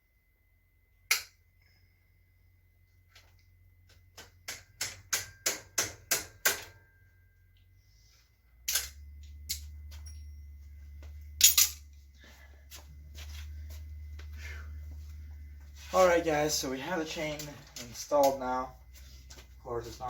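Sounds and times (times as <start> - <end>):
low hum: 6.8 - 20.0.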